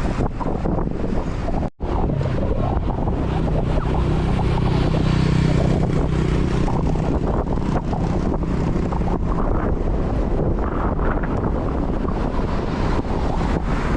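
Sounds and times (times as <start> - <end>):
wind rumbling on microphone: 0.0 - 13.9
vehicle engine passing by: 1.8 - 9.6.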